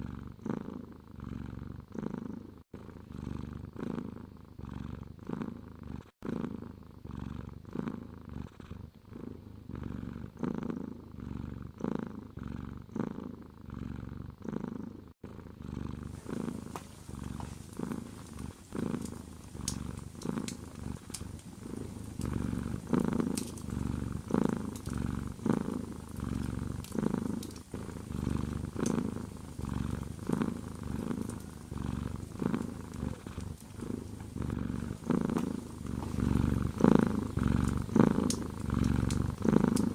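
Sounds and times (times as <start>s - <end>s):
cat purring: 0.0s - 39.9s
faint sharp crackles: 16.1s - 39.9s.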